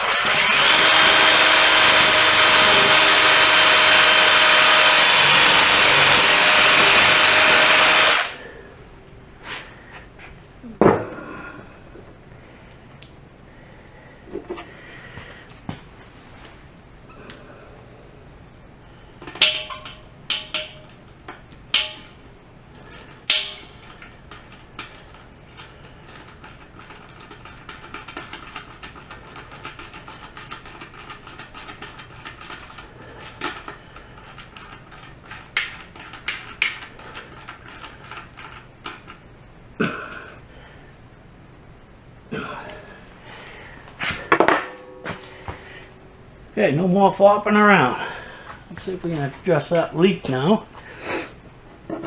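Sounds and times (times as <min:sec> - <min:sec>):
screw driven into sheet metal: 0:00.0 - 0:08.4, 0:21.7 - 0:22.2
metal tools clinking: 0:19.2 - 0:22.2.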